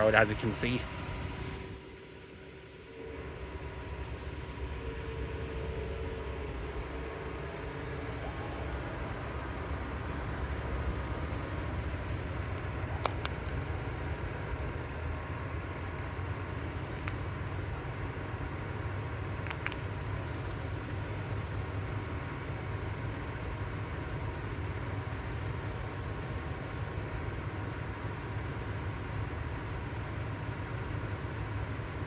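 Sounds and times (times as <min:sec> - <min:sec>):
truck engine idling: 0:00.0 - 0:32.0
faint clicks: 0:19.4 - 0:20.6.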